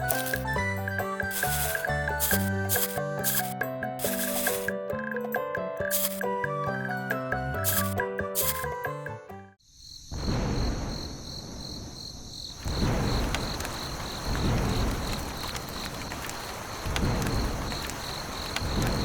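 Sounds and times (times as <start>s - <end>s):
cricket chirping: 0.0s - 0.5s, 9.6s - 19.0s
rumbling noise: 12.6s - 19.0s.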